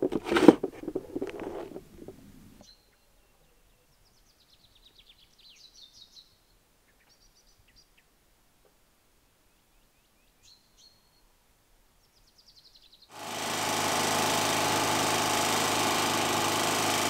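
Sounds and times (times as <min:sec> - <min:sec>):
knock and handling noise: 0:00.0 - 0:02.2
songbird singing faintly: 0:02.6 - 0:08.3, 0:09.2 - 0:13.1.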